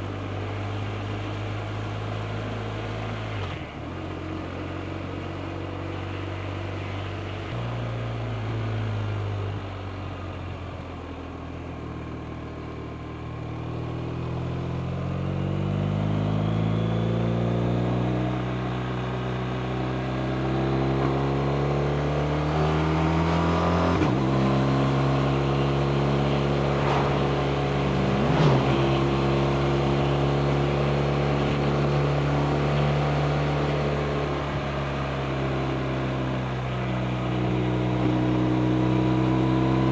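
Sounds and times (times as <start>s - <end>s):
motorcycle engine revving: 14.5s - 34.2s.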